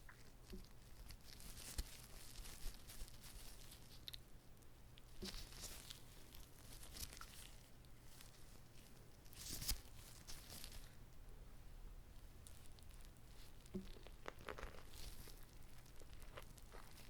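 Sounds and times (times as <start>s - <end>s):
food wrapper crinkling and tearing: 0.1s - 4.2s, 5.0s - 11.0s, 12.4s - 17.0s.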